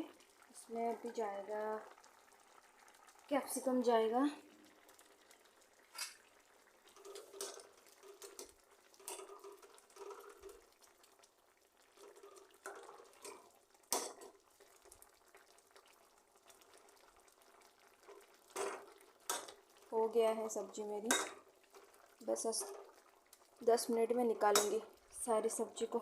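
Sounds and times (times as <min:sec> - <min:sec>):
gravy boiling: 0:00.0 - 0:26.0
utensil clinking on pot: 0:21.1 - 0:21.4, 0:24.5 - 0:24.8.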